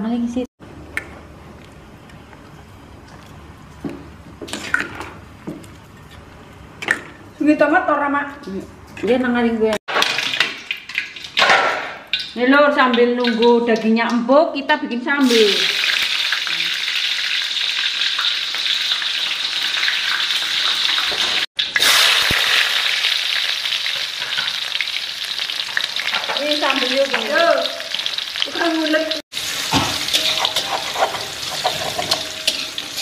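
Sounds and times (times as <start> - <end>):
chilies sizzling in hot oil: 15.2 - 33.0.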